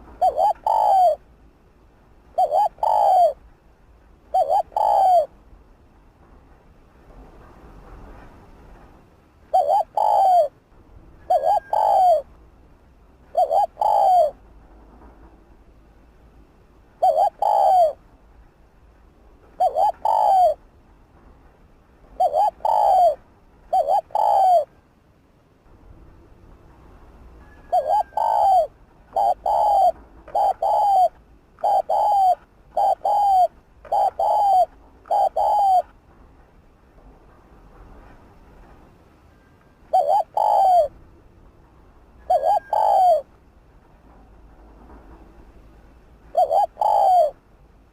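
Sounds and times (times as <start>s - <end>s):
dove cooing: 0.0s - 1.2s, 2.3s - 3.4s, 4.3s - 5.3s, 9.5s - 10.6s, 11.2s - 12.3s, 13.3s - 14.4s, 17.0s - 18.0s, 19.6s - 20.6s, 22.2s - 24.8s, 27.4s - 36.0s, 39.9s - 41.0s, 42.2s - 43.3s, 46.3s - 47.4s.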